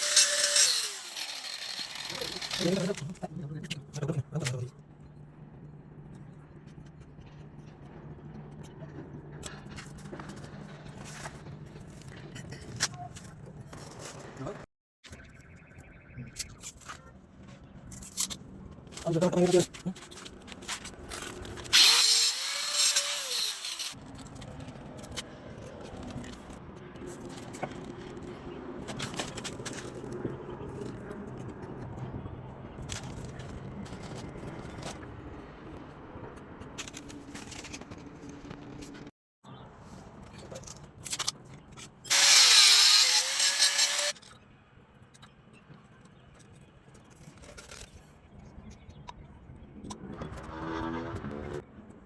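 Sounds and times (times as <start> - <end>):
small power tool whirring: 0.0 - 3.0, 21.8 - 24.0, 42.1 - 44.2.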